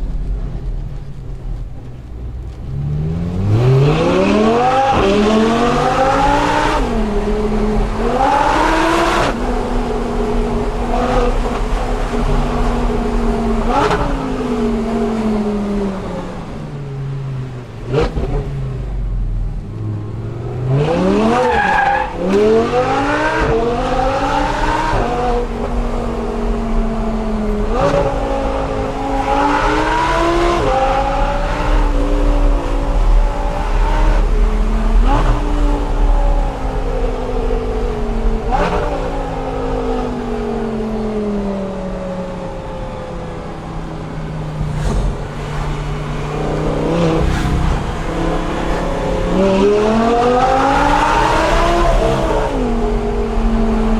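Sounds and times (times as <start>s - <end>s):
sports car engine revving: 2.0s - 42.4s.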